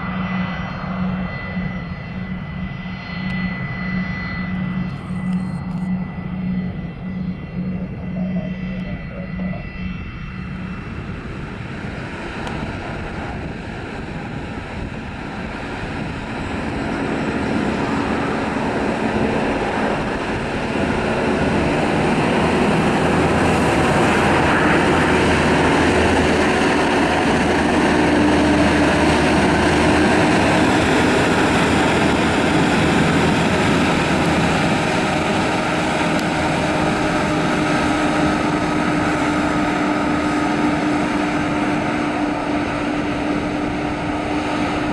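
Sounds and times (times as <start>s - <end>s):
aircraft engine noise: 0.0s - 44.9s.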